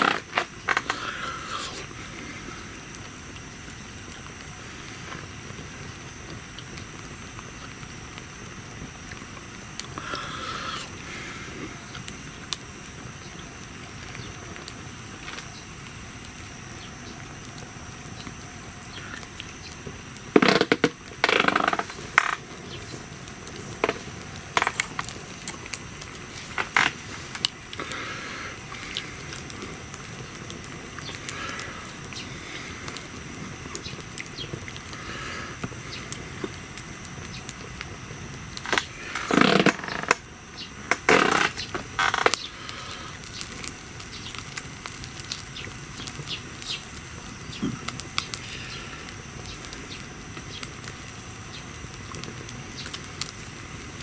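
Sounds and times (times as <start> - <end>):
wood fire crackling: 0.0 - 54.0
scraping and crunching: 20.3 - 28.0.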